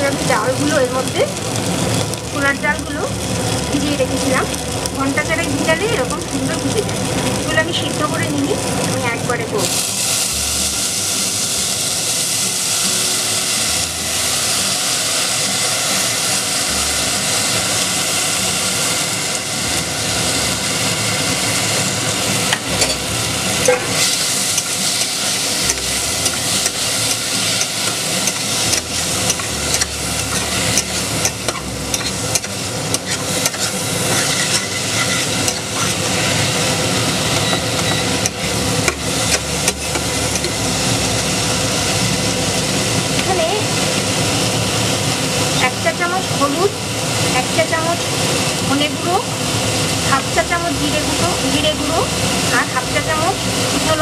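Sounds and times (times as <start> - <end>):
lentils sizzling in hot oil: 0.0 - 54.0
metal spatula scraping pot: 26.2 - 36.5, 37.3 - 38.6.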